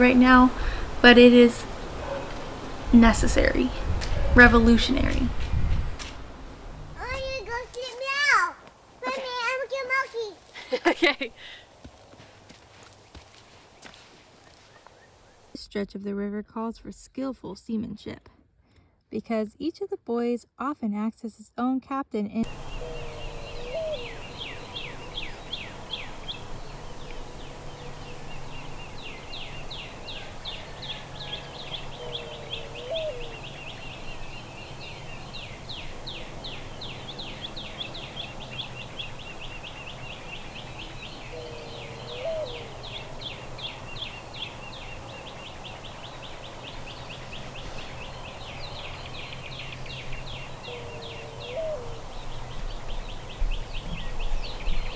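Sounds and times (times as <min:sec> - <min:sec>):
lower bird call: 0:00.0 - 0:10.0, 0:22.4 - 0:54.9
birds trilling: 0:00.0 - 0:15.5, 0:22.4 - 0:54.9.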